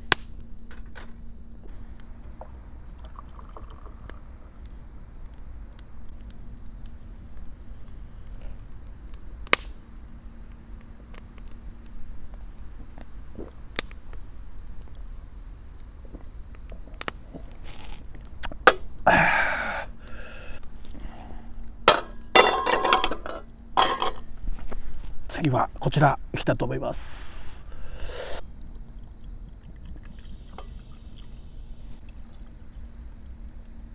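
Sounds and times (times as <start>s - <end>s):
campfire crackling and popping: 0.0s - 33.9s
high-pitched insect trill: 0.3s - 5.2s, 13.6s - 33.9s
cookware clattering: 21.9s - 24.3s.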